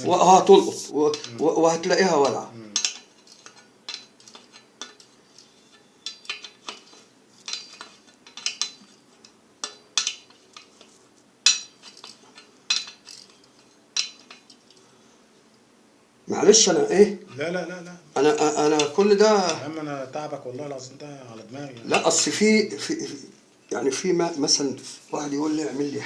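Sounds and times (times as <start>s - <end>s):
metallic clinks and knocks: 2.8s - 14.8s.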